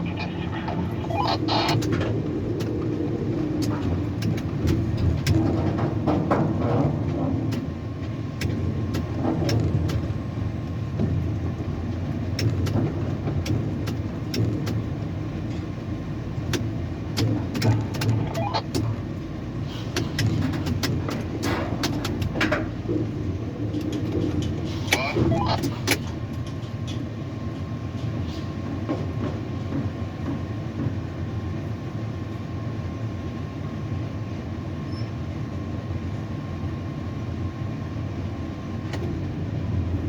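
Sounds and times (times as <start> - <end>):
crane machinery rumbling: 0.0 - 27.8
sharp clicks: 16.5 - 18.9.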